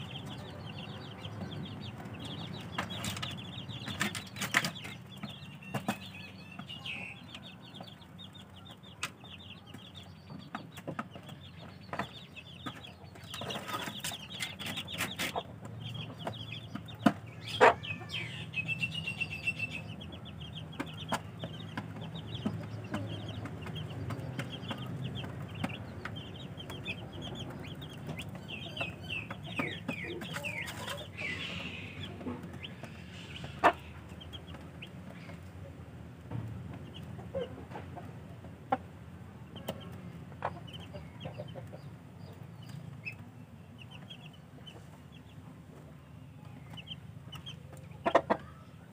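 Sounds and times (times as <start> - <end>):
chicks peeping: 0.0 - 48.9.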